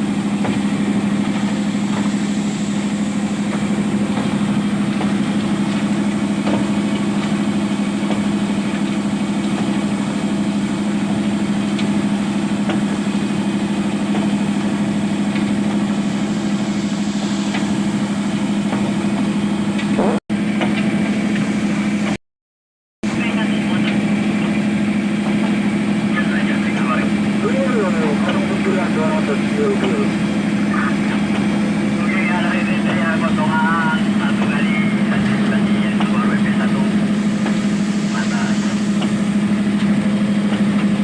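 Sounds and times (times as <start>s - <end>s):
excavator diesel engine humming: 0.0s - 22.2s, 23.0s - 41.0s.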